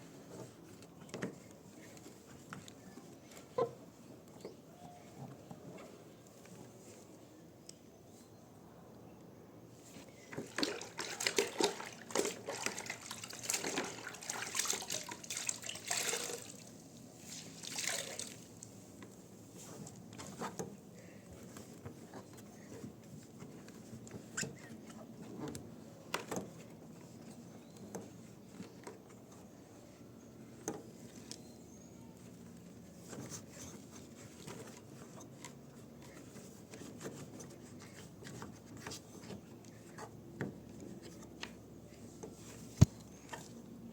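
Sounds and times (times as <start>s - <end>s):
water splashing and dripping: 10.4s - 16.7s, 17.3s - 18.5s.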